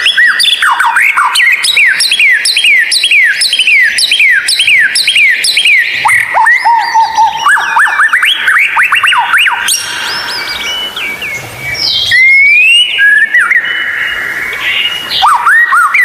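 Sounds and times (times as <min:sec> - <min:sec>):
bird singing whistled song: 0:00.0 - 0:16.0.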